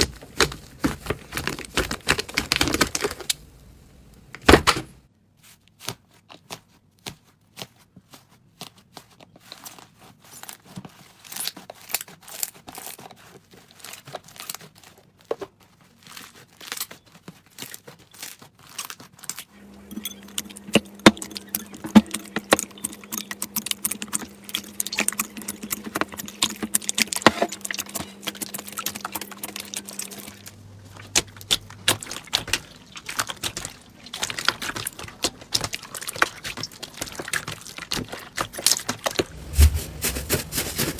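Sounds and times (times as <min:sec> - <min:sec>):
slime crackling and popping: 0:20.2 - 0:40.9.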